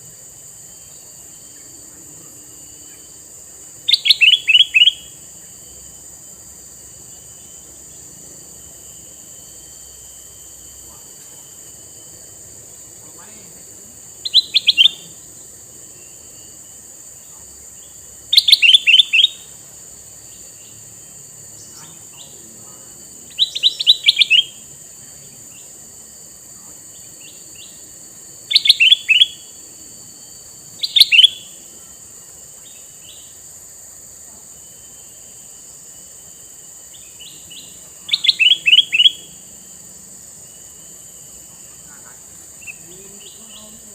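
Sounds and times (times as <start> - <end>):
steady high hiss: 0.0 - 43.9
bulbul calling: 3.8 - 5.2, 12.8 - 16.2, 17.3 - 19.6, 23.2 - 24.7, 28.4 - 29.6, 30.8 - 31.7, 36.9 - 39.4, 41.6 - 43.9.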